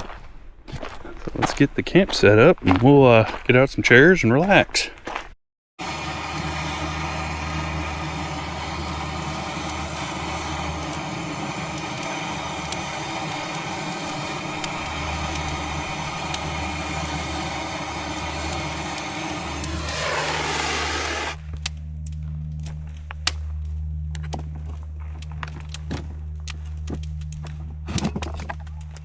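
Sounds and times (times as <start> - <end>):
engine idling: 5.8 - 21.4.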